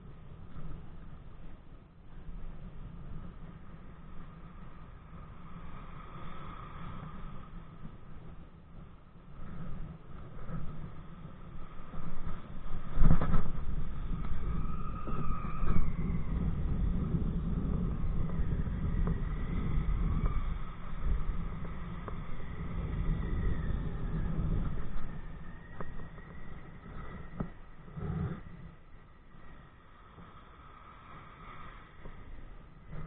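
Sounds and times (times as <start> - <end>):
wind rumbling on microphone: 0.0 - 33.0
faint wavering whistling: 14.0 - 29.5.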